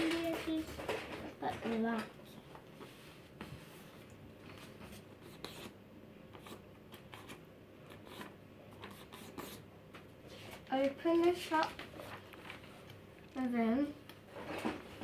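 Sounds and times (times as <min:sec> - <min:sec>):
paper rustling and crinkling: 0:00.0 - 0:04.9, 0:10.3 - 0:13.0, 0:14.3 - 0:15.0
paper crackle: 0:10.4 - 0:13.0.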